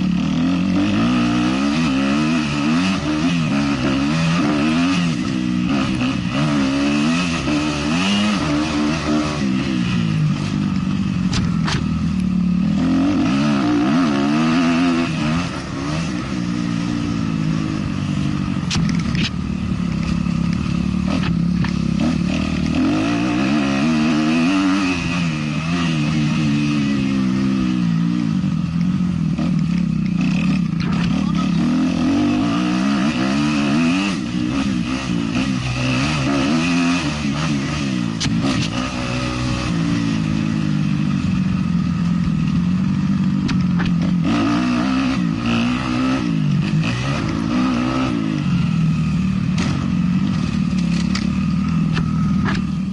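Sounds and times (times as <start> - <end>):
motocross bike engine revving: 0.0 - 52.9
sharp knocks and clatters: 49.5 - 52.8.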